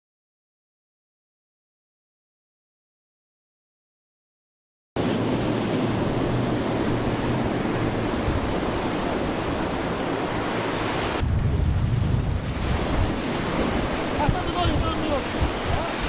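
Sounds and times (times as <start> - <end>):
sea rushing: 5.0 - 16.0
wind buffeting microphone: 5.0 - 16.0
wind rushing: 5.0 - 16.0
deep rumble: 5.1 - 14.2.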